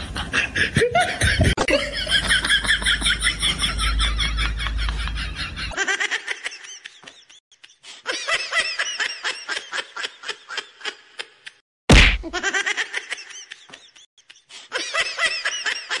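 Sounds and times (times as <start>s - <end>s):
sharp knock: 11.9s - 12.4s.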